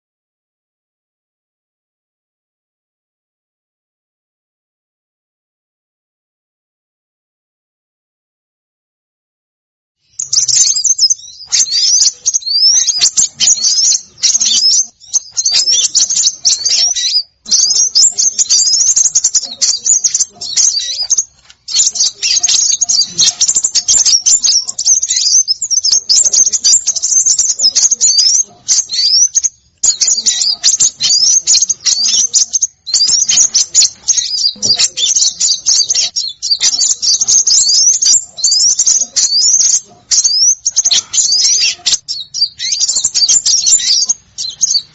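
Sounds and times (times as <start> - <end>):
small songbirds chirping: 10.0 - 44.9.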